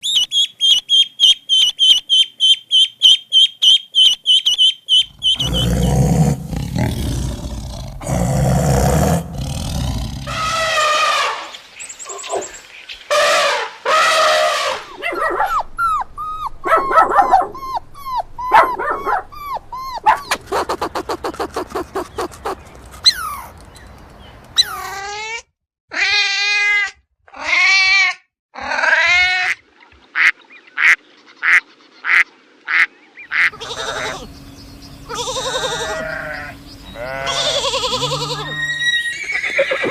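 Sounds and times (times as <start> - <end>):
fast rattling animal calls: 4.4 - 8.2, 19.8 - 23.5, 33.3 - 39.9
long animal calls: 4.9 - 11.5, 33.3 - 39.9
short high gliding animal calls: 35.1 - 39.9.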